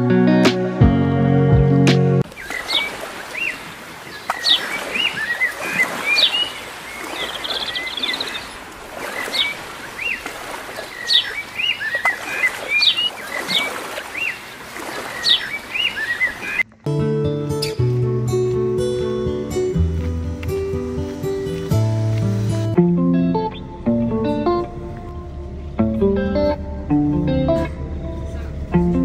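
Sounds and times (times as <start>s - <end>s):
small birds chirping: 2.2s - 16.7s.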